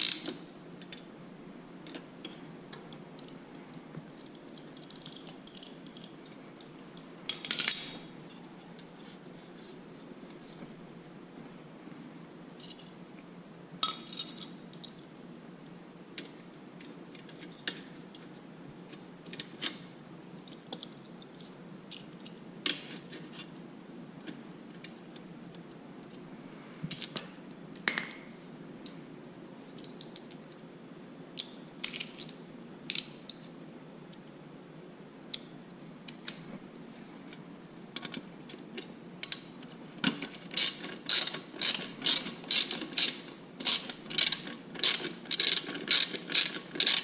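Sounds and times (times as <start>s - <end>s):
faint steady hum: 0.0s - 47.0s
metal tools clinking: 7.3s - 8.2s, 13.8s - 15.0s.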